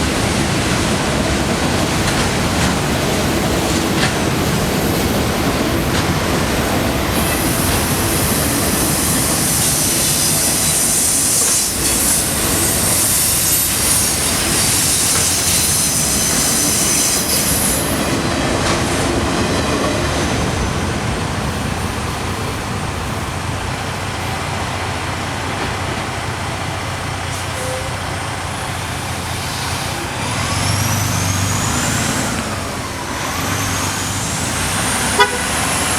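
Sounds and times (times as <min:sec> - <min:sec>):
freight train rumbling past: 0:00.0 - 0:35.9
high wheel squeal: 0:03.4 - 0:18.3, 0:27.3 - 0:35.9.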